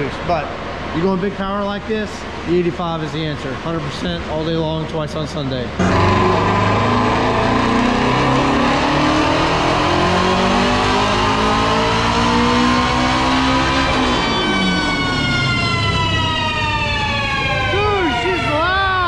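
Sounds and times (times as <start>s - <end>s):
car engine revving on dyno: 5.8s - 17.4s.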